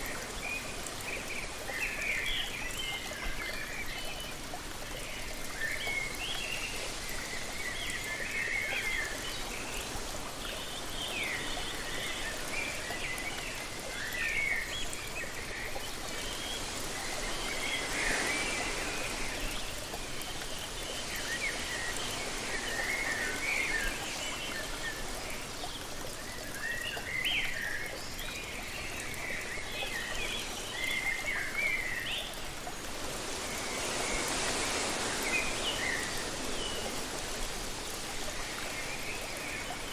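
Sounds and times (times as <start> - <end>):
waterfall rushing: 15.3 - 25.5, 29.1 - 39.9.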